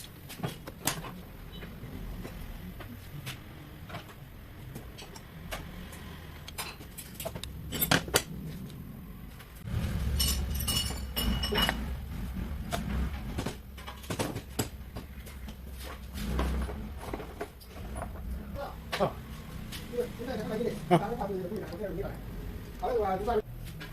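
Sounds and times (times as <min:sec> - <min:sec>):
metal tools clinking: 0:06.6 - 0:08.2, 0:10.1 - 0:11.9
ringing metallic clatter: 0:10.0 - 0:12.1.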